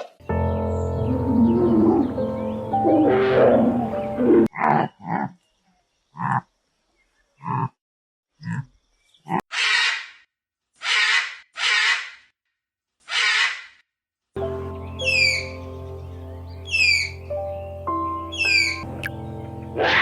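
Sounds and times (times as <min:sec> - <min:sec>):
animal calling: 0:02.8 - 0:05.3, 0:18.3 - 0:20.0.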